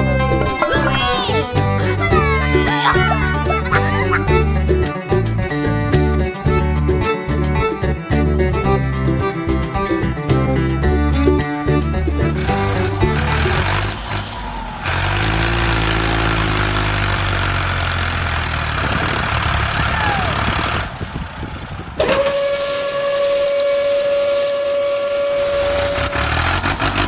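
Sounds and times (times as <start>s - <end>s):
steady high whistle: 22.2s - 26.2s.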